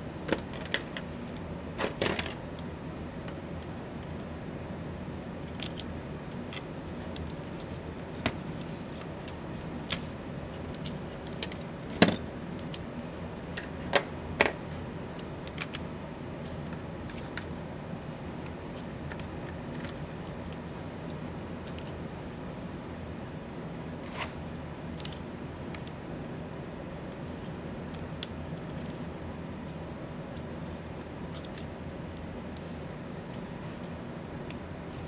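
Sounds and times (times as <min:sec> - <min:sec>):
low background hum: 0:00.0 - 0:35.0
clicks of small parts and tools: 0:31.3 - 0:31.7.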